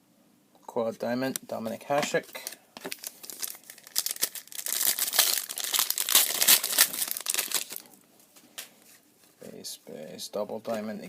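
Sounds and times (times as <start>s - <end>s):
foil wrapper crinkling: 2.3s - 8.0s.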